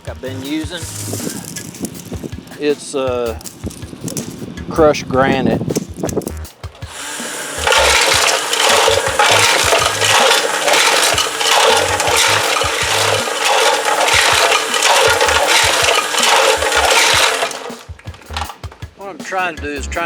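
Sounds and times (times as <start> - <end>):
gravel rattling inside metal tank: 7.6 - 18.6.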